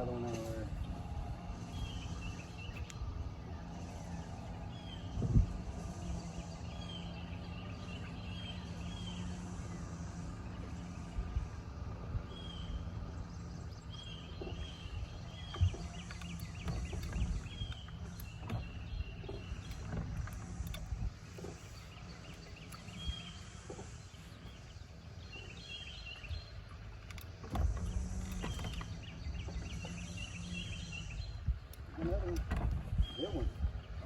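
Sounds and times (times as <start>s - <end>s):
wind rumbling on microphone: 0.0s - 8.2s, 10.3s - 24.8s, 27.4s - 34.0s.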